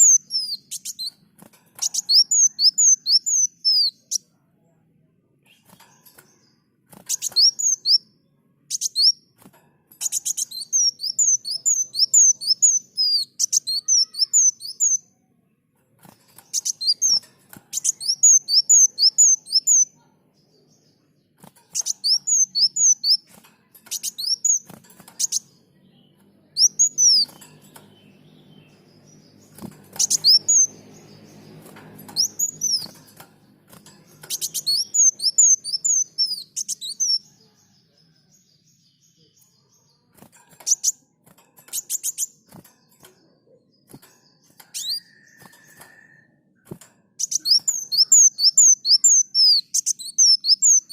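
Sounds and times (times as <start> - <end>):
bird chirping high notes: 10.0 - 15.2, 16.1 - 20.0, 21.6 - 37.4.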